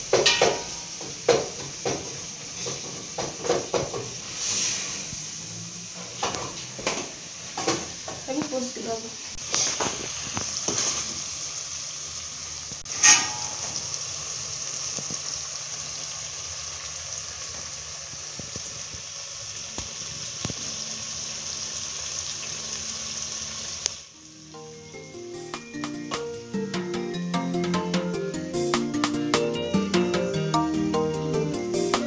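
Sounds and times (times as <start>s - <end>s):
food sizzling in a pot: 0.0s - 32.0s
spoon knocking metal pot: 0.1s - 2.1s, 12.9s - 13.9s.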